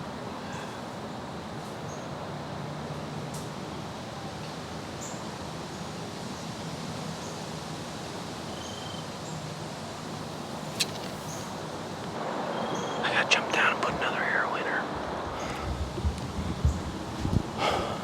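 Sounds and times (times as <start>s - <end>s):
wind rushing through trees: 3.5s - 18.0s
sharp click: 10.7s - 11.5s.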